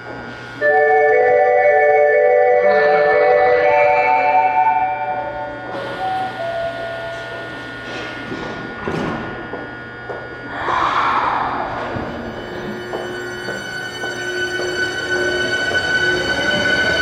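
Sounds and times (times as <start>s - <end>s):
chime melody: 0.6s - 5.8s.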